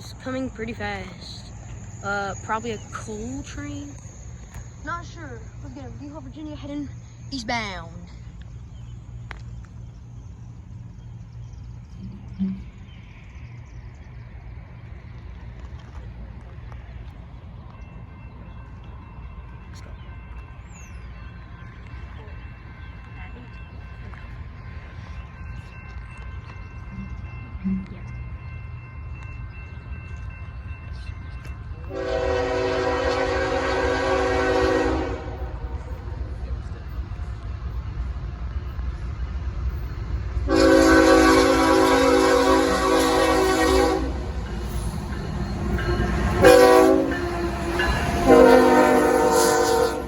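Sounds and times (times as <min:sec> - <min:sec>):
diesel locomotive rumble: 0:00.0 - 0:50.0
locomotive air horn: 0:31.9 - 0:35.6, 0:40.5 - 0:44.3, 0:46.0 - 0:50.0.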